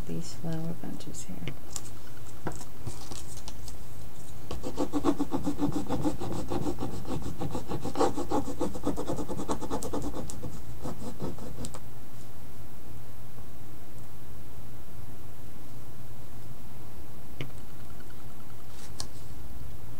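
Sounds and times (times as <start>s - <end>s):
rapid back-and-forth rubbing: 4.5s - 11.8s.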